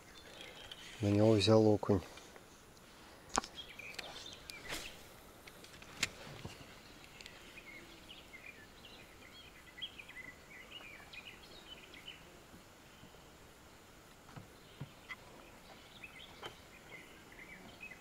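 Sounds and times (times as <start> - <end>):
faint small birds chirping: 0.0 - 18.0.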